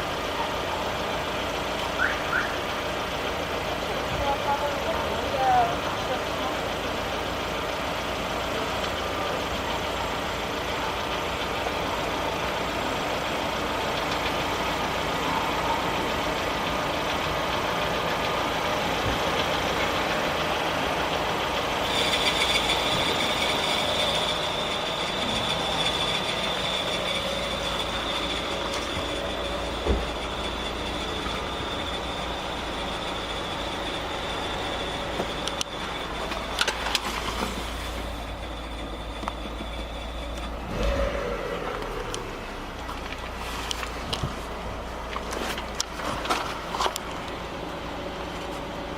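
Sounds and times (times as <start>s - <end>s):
car engine idling: 0.0s - 48.9s
high steady whistle: 2.0s - 2.7s, 21.8s - 36.7s.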